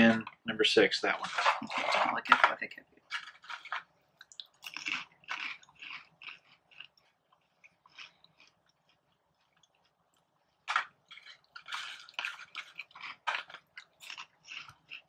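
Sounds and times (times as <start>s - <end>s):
crisp crunching chews: 3.1s - 15.0s
crunchy snack bite: 3.2s - 10.0s, 10.6s - 15.0s.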